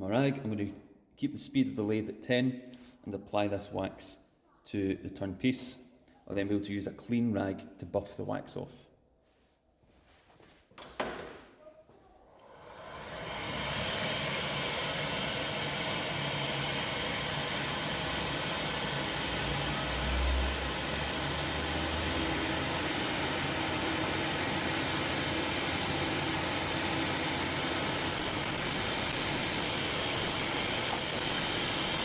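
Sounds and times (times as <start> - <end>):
wood lathe running: 12.5 - 32.0.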